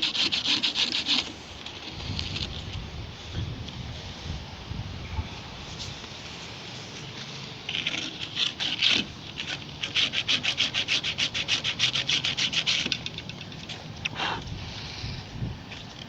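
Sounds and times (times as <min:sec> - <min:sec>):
abrasive scrubbing on metal part: 0:00.0 - 0:01.4, 0:07.7 - 0:13.3.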